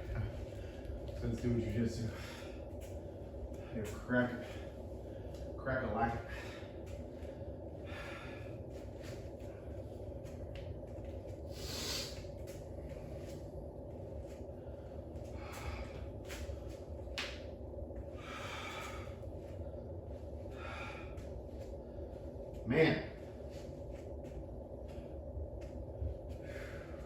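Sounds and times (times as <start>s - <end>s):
steady low hum: 0.0s - 27.0s
man breathing hard: 1.9s - 10.4s, 11.3s - 13.4s, 14.4s - 16.9s, 18.0s - 23.7s, 26.0s - 27.0s.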